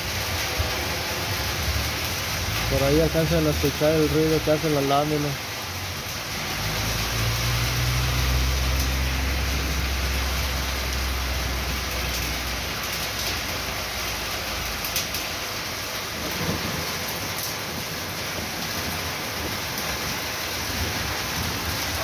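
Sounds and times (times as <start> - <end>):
car passing on wet road: 0.0 - 22.0
rain on a metal roof: 0.0 - 22.0.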